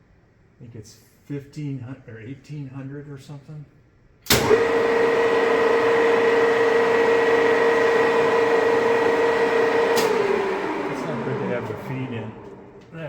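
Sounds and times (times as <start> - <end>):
drill press motor whine: 4.3 - 13.0.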